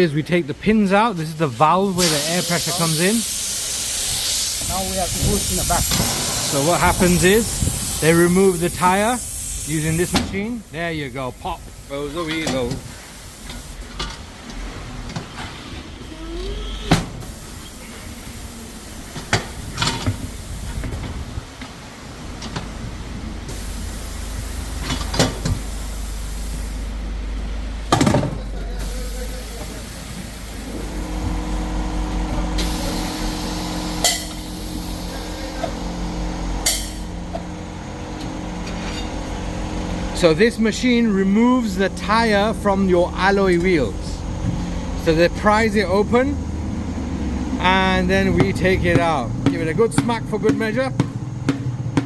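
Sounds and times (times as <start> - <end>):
air hiss bursts: 1.2 - 14.0, 17.1 - 21.4, 23.4 - 27.0, 28.7 - 37.6
low motor hum: 22.3 - 52.0.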